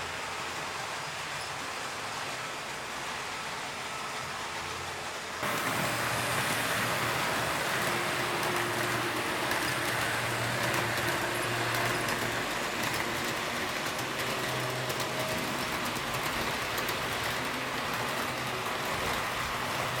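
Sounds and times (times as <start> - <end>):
model train rolling: 0.0 - 20.0
faint motor hum: 5.4 - 20.0
wheels clicking over rail joints: 5.4 - 20.0.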